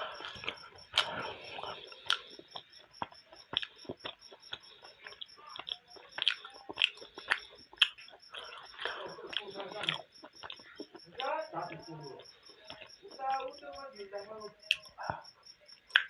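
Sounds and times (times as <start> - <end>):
faint high-pitched ticking: 0.0 - 16.0
person chewing food: 0.0 - 16.0.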